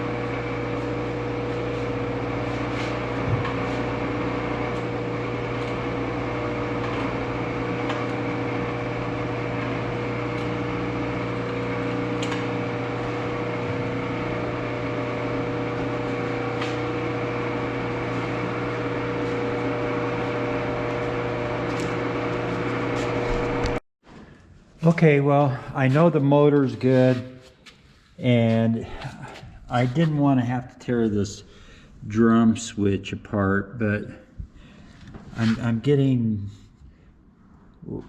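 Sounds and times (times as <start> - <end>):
lathe motor humming and whining: 0.0 - 23.8.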